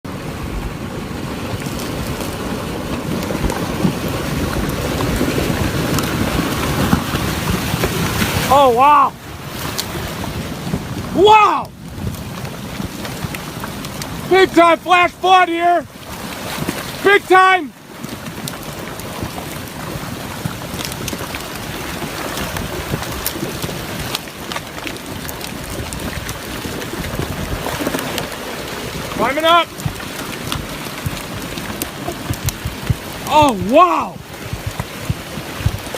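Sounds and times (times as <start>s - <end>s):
floodwater rushing and churning: 0.0s - 35.9s
sharp clicks and knocks: 29.8s - 33.6s.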